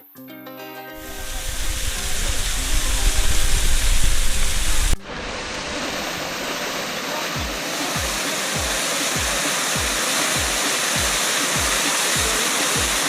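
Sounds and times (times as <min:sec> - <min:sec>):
waterfall rushing: 0:01.0 - 0:13.0
music with deep kick drum: 0:06.0 - 0:13.0.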